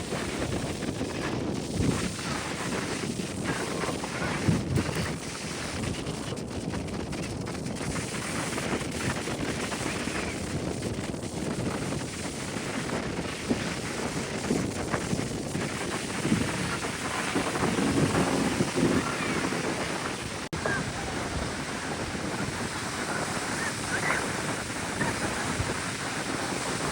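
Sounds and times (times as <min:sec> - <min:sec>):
wind buffeting microphone: 0:00.0 - 0:26.9
surf rushing: 0:07.9 - 0:26.9.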